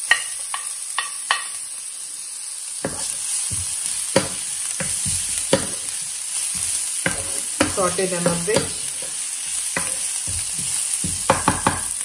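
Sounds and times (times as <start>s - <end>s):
spatula tapping on pan: 0.0s - 1.6s, 2.8s - 12.0s
spices sizzling in oil: 0.0s - 12.0s
spatula scraping pan: 2.8s - 12.0s.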